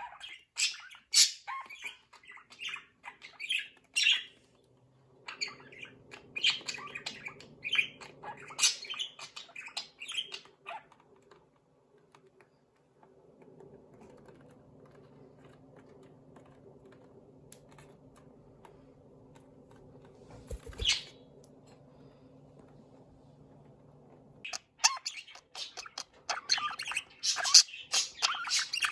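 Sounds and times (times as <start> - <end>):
budgies chirping and chattering: 0.0 - 4.5, 5.2 - 11.4, 20.5 - 21.2, 24.4 - 28.9.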